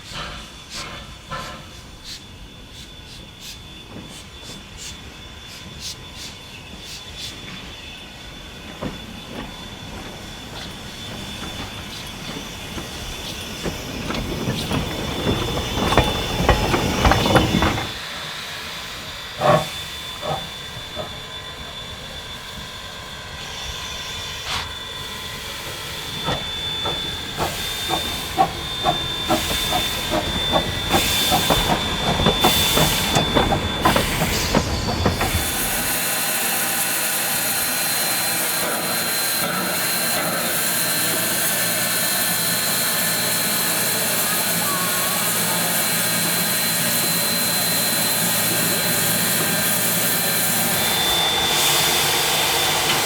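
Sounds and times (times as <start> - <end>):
loud hiss of steam: 0.0 - 53.0
steam locomotive train rumble: 0.0 - 53.0
wheels clicking over rail joints: 8.6 - 18.1, 19.4 - 21.2, 26.1 - 36.1.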